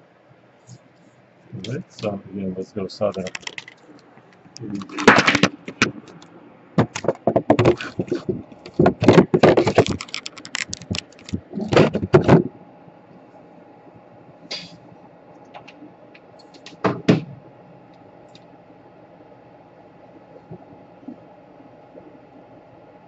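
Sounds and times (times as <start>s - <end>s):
faint steady hum: 0.0s - 23.0s
tools clicking and knocking: 8.7s - 11.4s.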